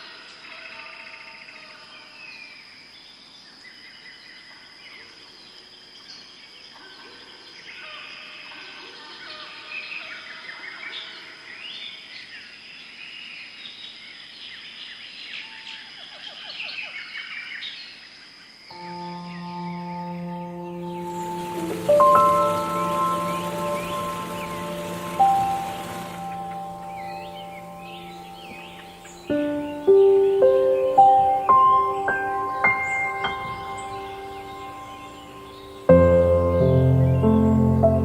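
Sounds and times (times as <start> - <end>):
birds chirping: 18.7 - 38.0.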